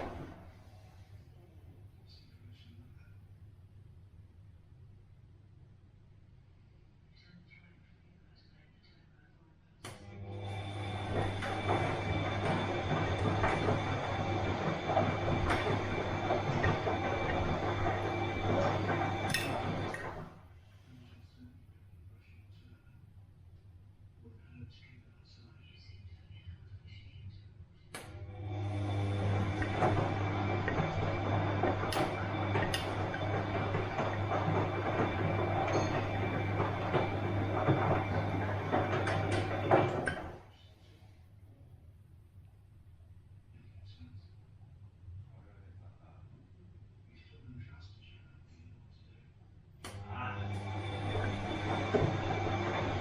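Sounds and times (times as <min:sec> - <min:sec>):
washing machine humming: 0:00.0 - 0:01.3, 0:09.9 - 0:20.5, 0:28.0 - 0:40.5, 0:49.8 - 0:53.0
small knocks and clatters: 0:29.6 - 0:40.4.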